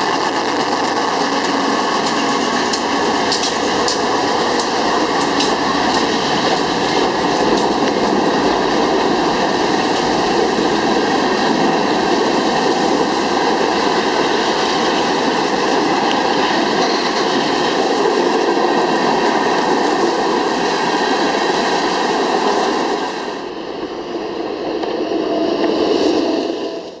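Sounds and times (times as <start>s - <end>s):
empty cars rattling: 0.0s - 10.5s
freight train rumbling past: 0.0s - 27.0s
sharp clacks: 1.2s - 6.7s.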